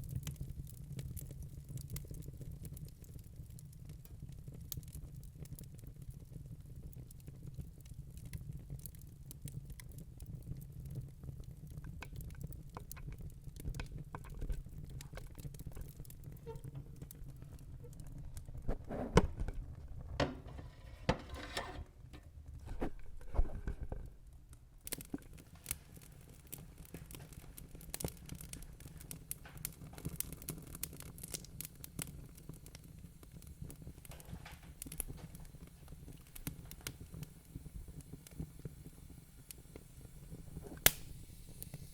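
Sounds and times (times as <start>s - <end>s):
log fire crackling and popping: 0.0s - 41.9s
low rumble of flames: 0.0s - 41.9s.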